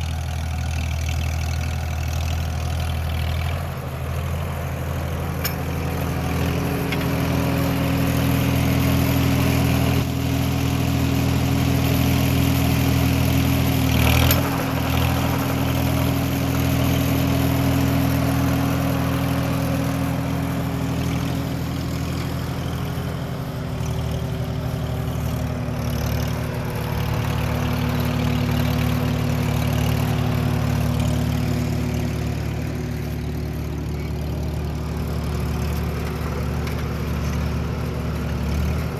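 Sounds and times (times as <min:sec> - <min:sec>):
engine knock: 0:00.0 - 0:38.9
tractor engine running: 0:00.0 - 0:38.9.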